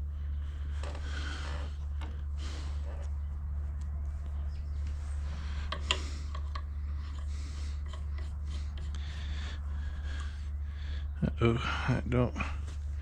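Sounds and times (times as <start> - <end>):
steady low hum: 0.0 - 13.0
tools clicking and tapping: 5.7 - 9.0.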